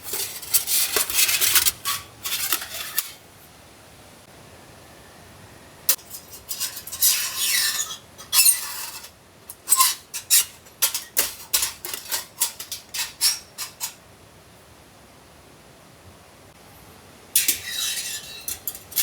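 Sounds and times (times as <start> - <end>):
rasping scrapes: 0.0 - 3.2.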